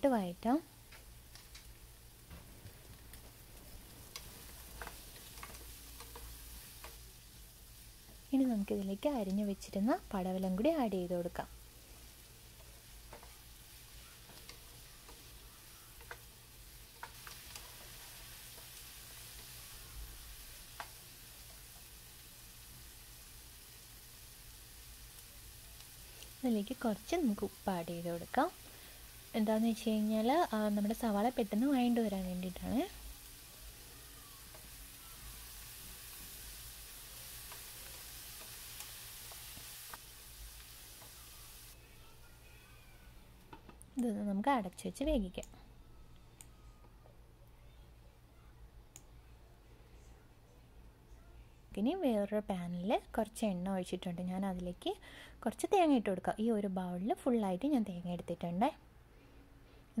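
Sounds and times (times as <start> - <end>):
onions frying in oil: 0.0 - 43.3
spatula stirring: 3.1 - 7.0, 11.6 - 21.9
spatula tapping a pan: 4.8 - 7.0, 14.2 - 16.3.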